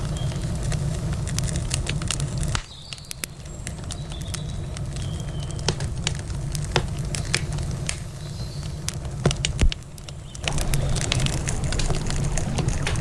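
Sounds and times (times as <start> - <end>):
campfire crackling: 0.0 - 13.0
river water flowing: 10.4 - 13.0.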